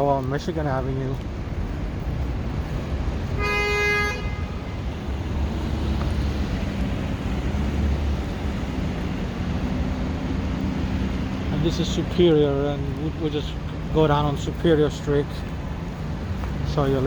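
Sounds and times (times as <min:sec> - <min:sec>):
street traffic rumble: 0:00.0 - 0:17.0
vehicle horn toot: 0:03.4 - 0:04.7.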